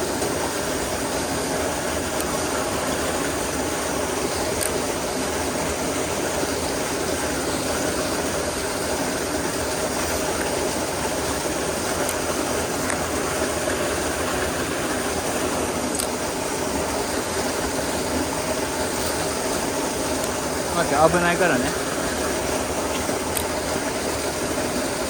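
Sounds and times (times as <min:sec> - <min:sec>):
stream water rushing into a pool: 0:00.0 - 0:25.0.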